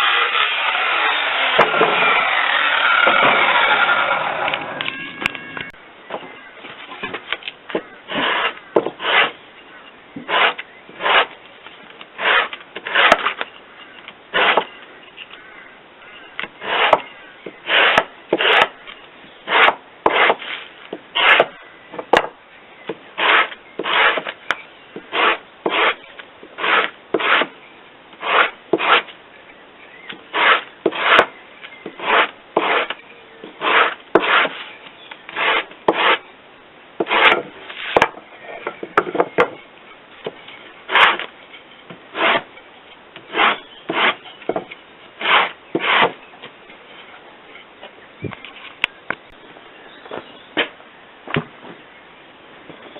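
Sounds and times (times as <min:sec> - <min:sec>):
hand tool rubbing on wood: 0:08.1 - 0:09.4, 0:10.3 - 0:11.4, 0:12.2 - 0:13.4, 0:16.6 - 0:17.0, 0:17.6 - 0:18.7, 0:19.5 - 0:21.5, 0:23.2 - 0:24.4, 0:25.1 - 0:26.0, 0:26.6 - 0:27.5, 0:28.2 - 0:29.1, 0:30.3 - 0:33.0, 0:33.6 - 0:36.2, 0:37.0 - 0:38.0, 0:42.1 - 0:42.5, 0:43.3 - 0:46.2.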